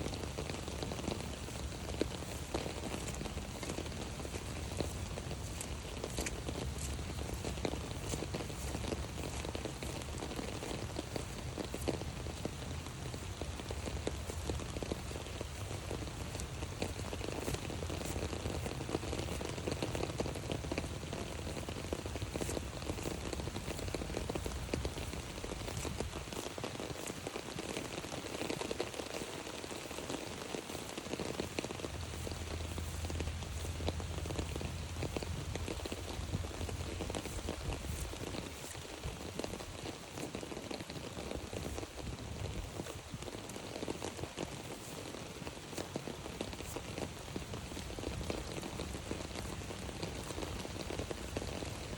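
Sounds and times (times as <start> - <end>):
rain pattering on an umbrella: 0.0 - 51.9.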